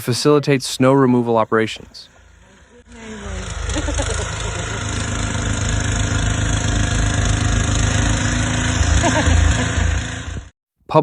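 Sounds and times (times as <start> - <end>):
engine idling: 2.0 - 10.5.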